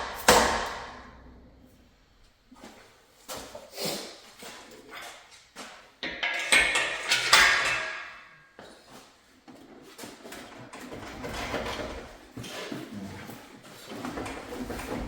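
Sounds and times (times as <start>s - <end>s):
metal scraping and rattling: 6.2s - 8.2s.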